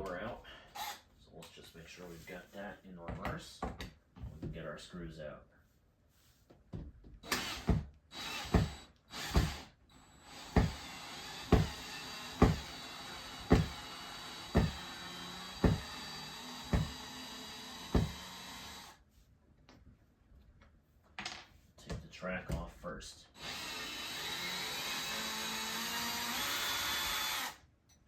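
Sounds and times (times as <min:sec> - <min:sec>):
cordless drill running: 0:00.8 - 0:01.0, 0:07.2 - 0:19.0, 0:23.4 - 0:27.6.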